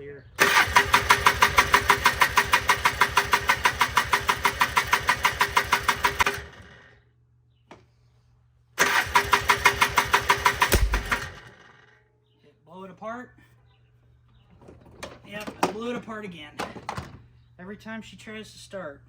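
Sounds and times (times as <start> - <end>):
engine cranking: 0.4 - 6.9, 8.8 - 11.9
engine backfiring: 0.4 - 7.0, 8.8 - 11.9.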